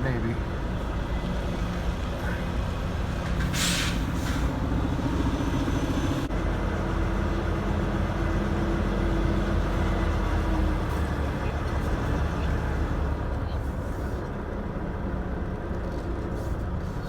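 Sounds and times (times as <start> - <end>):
truck engine rumble: 0.0 - 17.0
air hisses: 3.5 - 4.5.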